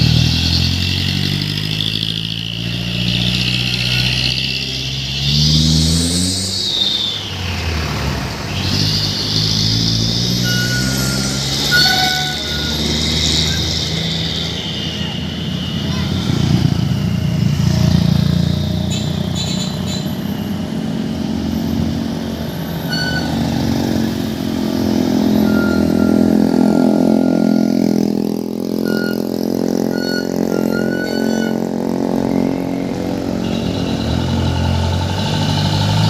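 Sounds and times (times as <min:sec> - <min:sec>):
diesel truck engine revving: 0:00.0 - 0:36.0
short high beeps: 0:10.4 - 0:13.6, 0:22.9 - 0:23.5, 0:25.4 - 0:27.9, 0:28.8 - 0:31.7.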